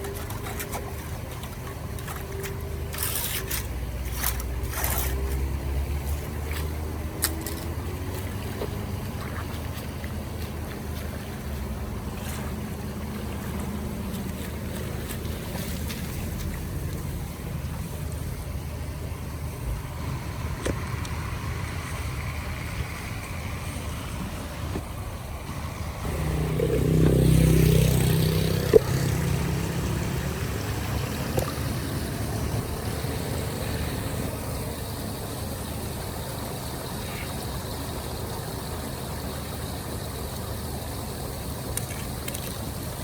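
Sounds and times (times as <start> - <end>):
steady low rushing noise: 16.6 - 34.7
motor vehicle passing: 25.5 - 34.8.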